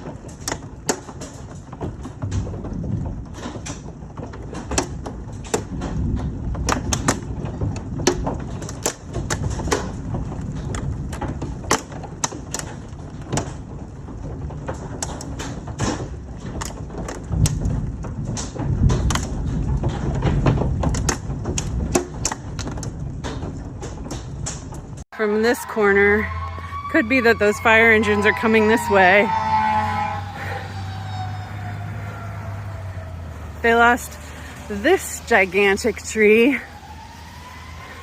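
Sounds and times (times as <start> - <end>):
steady low rumble: 24.6 - 38.0.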